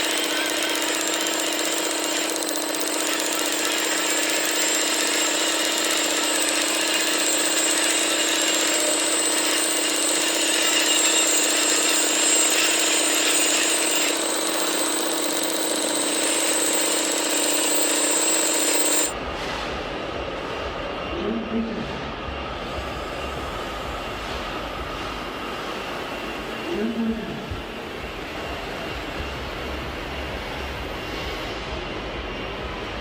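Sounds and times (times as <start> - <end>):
motor whine: 0.0 - 19.2.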